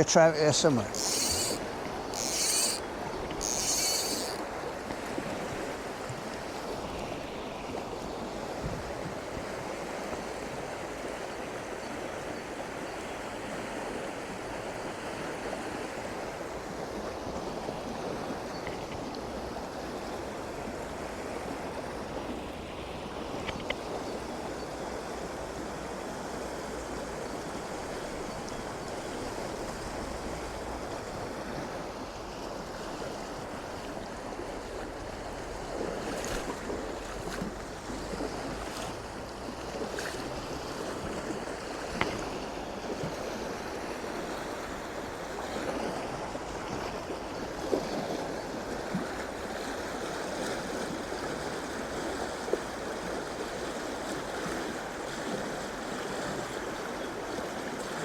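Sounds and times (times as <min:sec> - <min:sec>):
stream water running over rocks: 0:00.0 - 0:08.3.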